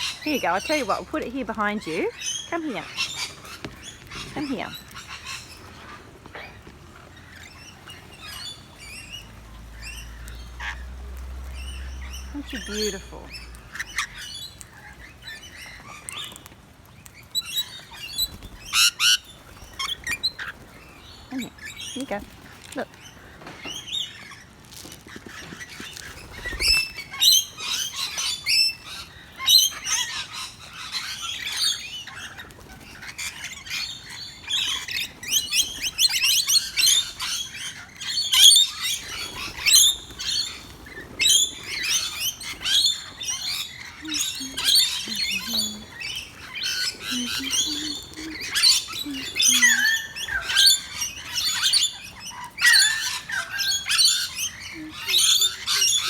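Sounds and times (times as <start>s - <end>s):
birds chirping and squawking: 0.0s - 56.0s.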